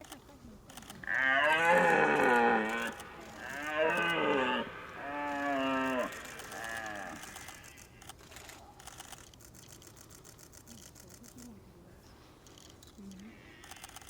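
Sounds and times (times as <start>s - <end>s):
red deer stag roaring: 1.1s - 7.6s.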